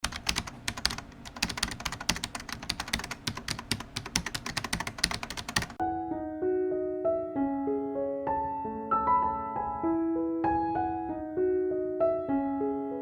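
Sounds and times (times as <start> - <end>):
rapid keyboard typing: 0.0 - 5.8
piano melody: 0.0 - 13.0.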